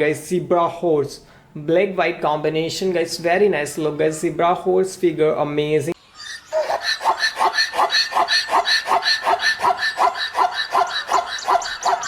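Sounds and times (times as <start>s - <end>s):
zebra barking yelps: 6.2s - 12.0s.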